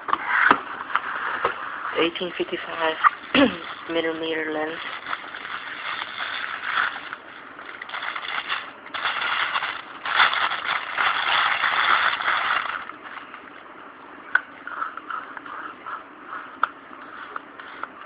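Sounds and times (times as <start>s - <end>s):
packaging crinkling and rustling: 2.2s - 13.5s.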